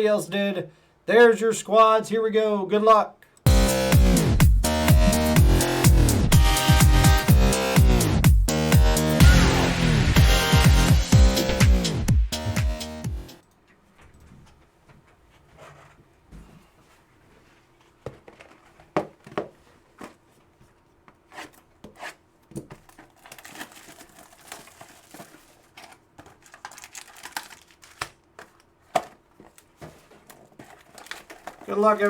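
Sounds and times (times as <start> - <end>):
cards rustling and clicking: 21.4 - 32.0
card pack wrappers tearing: 22.8 - 32.0.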